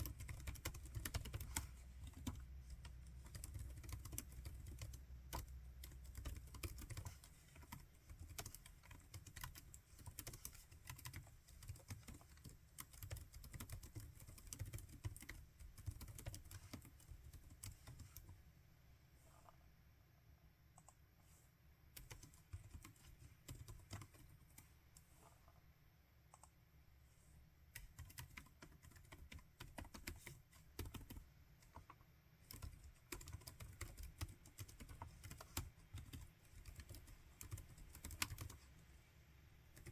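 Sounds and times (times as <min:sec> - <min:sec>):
typing on laptop keyboard: 0:00.0 - 0:18.4, 0:21.9 - 0:25.0, 0:27.7 - 0:38.7.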